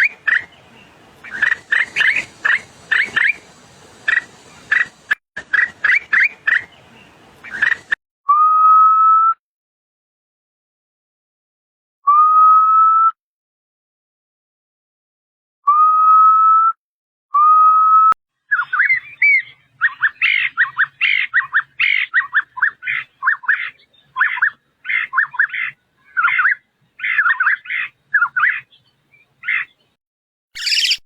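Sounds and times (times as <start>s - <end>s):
bird whistled calls: 1.2s - 3.4s, 17.4s - 28.6s, 30.6s - 31.0s.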